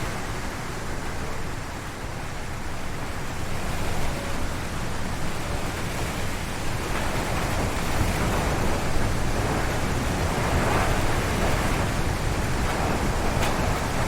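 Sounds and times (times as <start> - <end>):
wind booming on microphone: 0.0 - 14.0
wind gusting through trees: 0.0 - 14.0.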